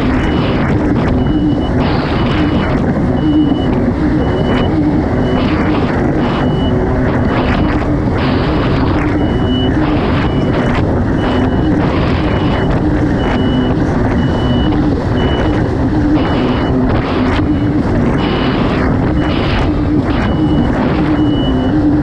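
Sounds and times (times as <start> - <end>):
jet ski engine running hard: 0.0 - 22.0
short high beep: 3.2 - 5.5, 9.2 - 15.6, 19.1 - 21.8.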